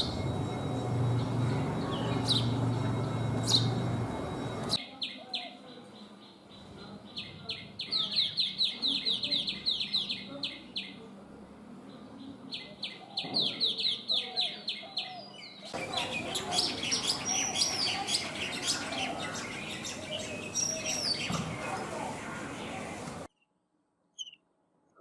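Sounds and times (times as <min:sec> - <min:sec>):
noisy background: 0:00.0 - 0:05.3, 0:15.7 - 0:23.3
bird calling: 0:00.0 - 0:10.9, 0:12.6 - 0:23.4.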